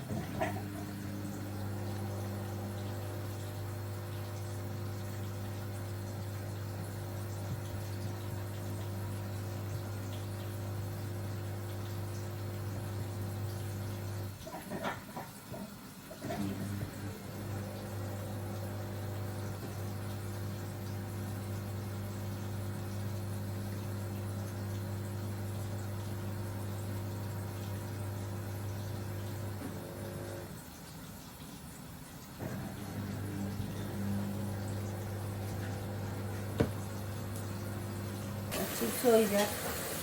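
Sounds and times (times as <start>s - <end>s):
electric motor hum: 32.4s - 40.0s.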